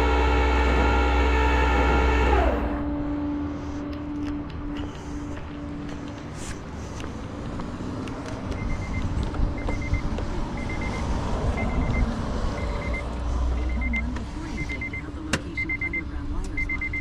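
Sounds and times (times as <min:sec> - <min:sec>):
truck engine rumbling: 0:00.0 - 0:17.0
electronic warning beeper pips: 0:11.6 - 0:17.0.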